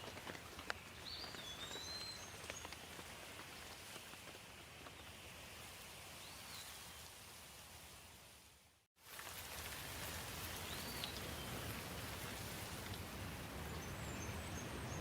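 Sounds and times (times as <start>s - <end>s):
steady rain falling: 9.0s - 15.0s.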